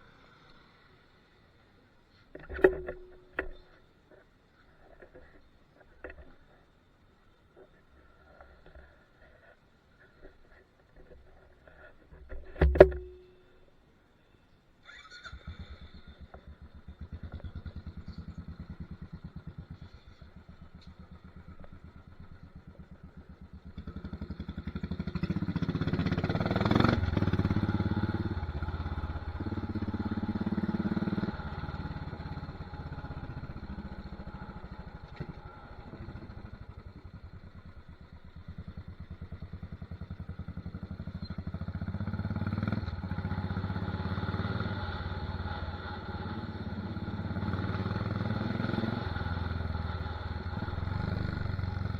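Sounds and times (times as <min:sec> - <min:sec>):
motorcycle engine revving: 0:15.3 - 0:51.9
exhaust crack: 0:15.5 - 0:51.9.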